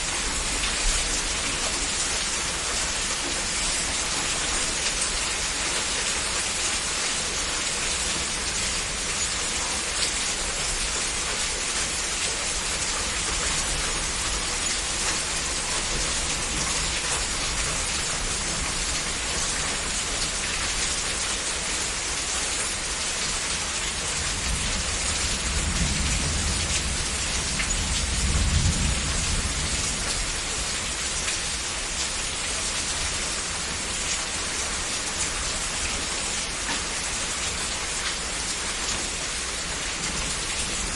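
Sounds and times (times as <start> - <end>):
heavy rain falling: 0.0 - 40.9
low rumble of thunder: 24.2 - 31.2.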